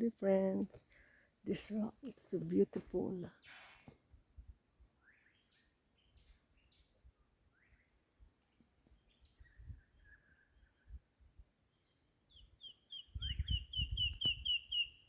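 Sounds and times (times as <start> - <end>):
bird chirps: 3.5 - 8.0, 8.9 - 11.0, 11.7 - 15.0.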